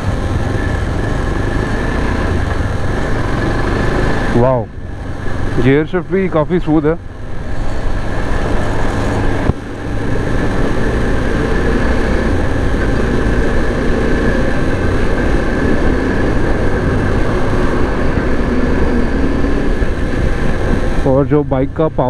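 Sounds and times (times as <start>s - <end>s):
wind rushing: 0.0s - 21.4s
motorcycle engine running: 0.0s - 22.0s.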